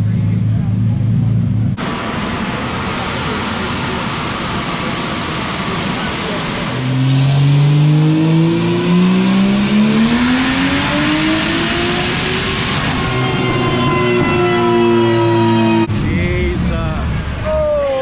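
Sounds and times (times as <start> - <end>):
engine at full throttle: 0.0 - 17.8
high turbo whine: 0.0 - 18.0.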